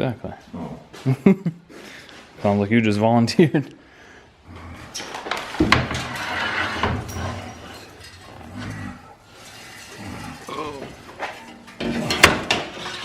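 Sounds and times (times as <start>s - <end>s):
metal clinks and knocks: 5.6s - 13.0s.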